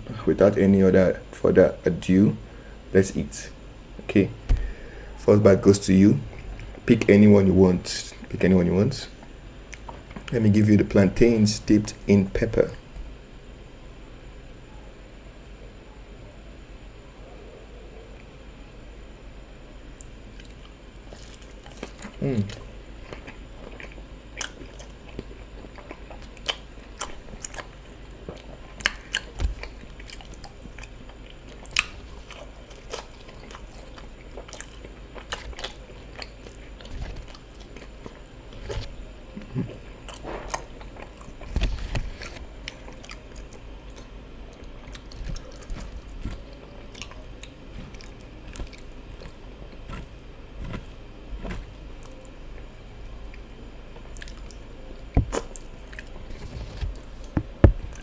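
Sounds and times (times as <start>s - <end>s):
person chewing and biting: 20.3s - 52.4s, 53.2s - 58.0s.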